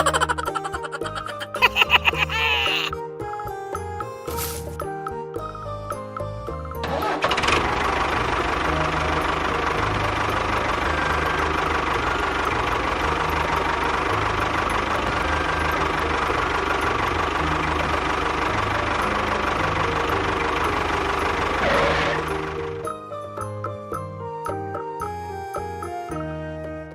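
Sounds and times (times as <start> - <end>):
engine running with knocking beat: 6.2 - 26.0.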